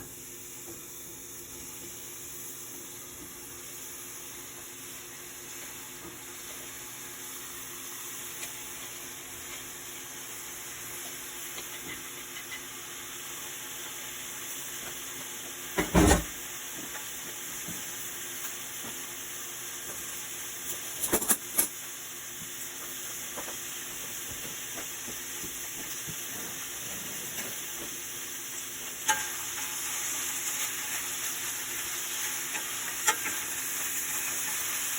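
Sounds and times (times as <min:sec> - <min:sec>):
food sizzling in a pan: 0:00.0 - 0:34.9.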